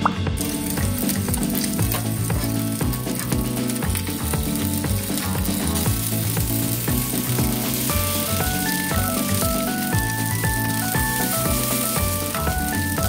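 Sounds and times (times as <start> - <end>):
background music: 0.0 - 13.0
peppers sizzling in frying pan: 0.4 - 13.0.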